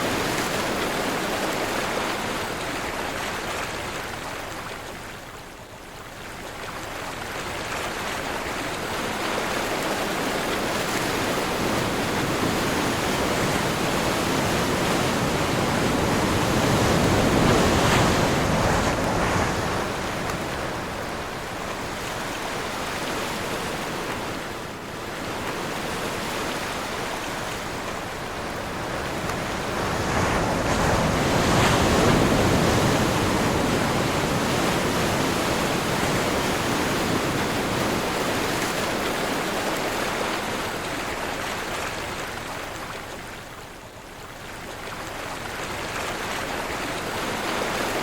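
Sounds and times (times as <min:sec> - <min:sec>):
ocean waves washing: 0:00.0 - 0:05.0, 0:06.8 - 0:48.0
strong wind: 0:10.0 - 0:40.8.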